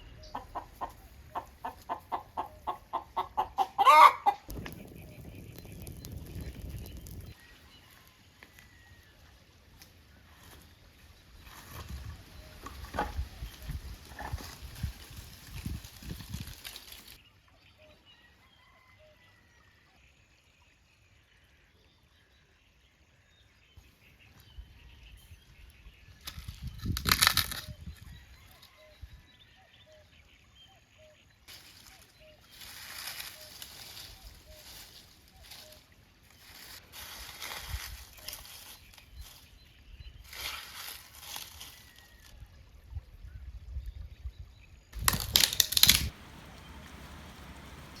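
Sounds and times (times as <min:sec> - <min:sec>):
chicken clucking: 0:00.1 - 0:04.5
chicken squawk: 0:00.3 - 0:04.5.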